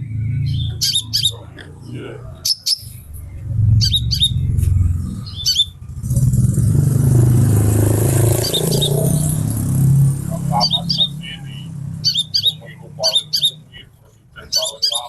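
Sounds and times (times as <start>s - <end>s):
bird chirping: 0.0s - 15.0s
low engine hum: 0.0s - 15.0s
vehicle passing: 0.0s - 15.0s.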